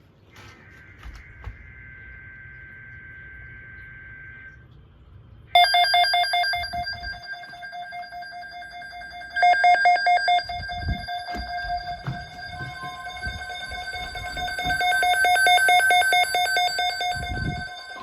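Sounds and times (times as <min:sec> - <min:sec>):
steady warning tone: 0:00.3 - 0:18.0
data tones: 0:05.6 - 0:18.0
weather radio alarm ringing: 0:05.6 - 0:18.0.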